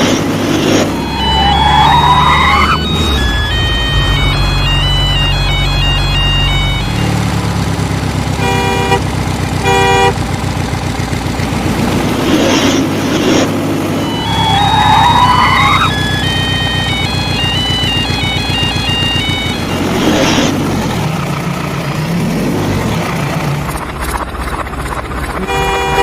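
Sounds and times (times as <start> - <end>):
rising whine: 0.0 - 8.5, 11.5 - 21.1
electronic jingle: 0.6 - 7.8, 13.9 - 20.6
horn beeps: 0.6 - 10.2, 13.9 - 20.6, 25.4 - 26.0
toy engine rumble: 2.7 - 26.0.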